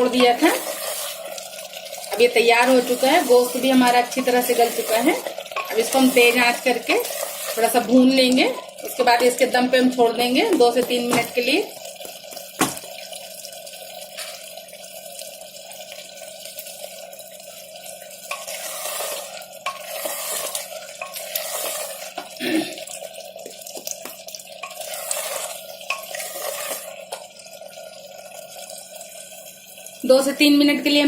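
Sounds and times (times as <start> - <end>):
spoon stirring and scraping pot: 0.0 - 8.0, 18.3 - 22.4, 24.0 - 27.2
curry sizzling in a pot: 0.0 - 31.0.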